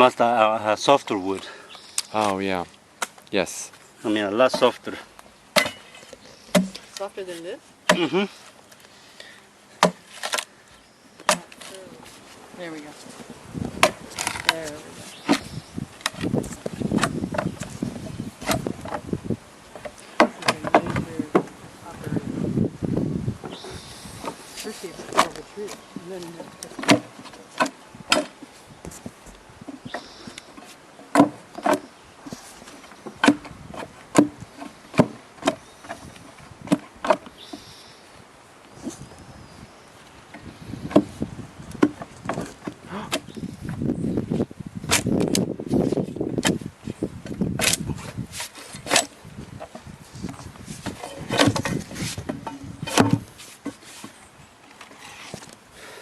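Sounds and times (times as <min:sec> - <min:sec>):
metal tool scraping wooden frames: 0:47.6 - 0:54.2, 0:54.8 - 0:55.6.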